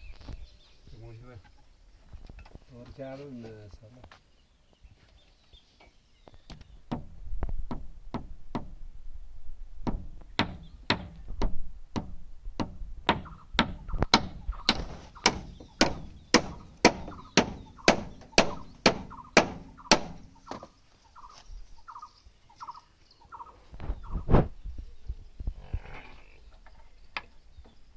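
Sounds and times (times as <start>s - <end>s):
sharp knocks: 9.8s - 20.6s.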